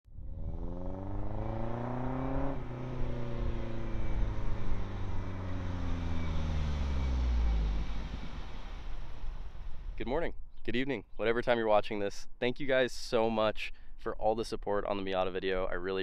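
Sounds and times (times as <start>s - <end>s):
low rumble: 0.0s - 10.6s
car engine accelerating: 0.1s - 10.0s.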